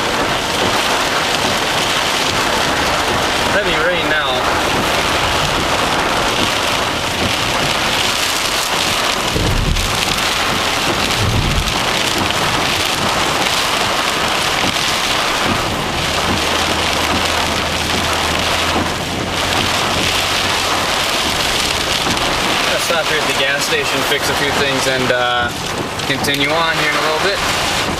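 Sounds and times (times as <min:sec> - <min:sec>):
low thumps: 0:00.0 - 0:26.4
heavy rain pelting a car: 0:00.0 - 0:27.9.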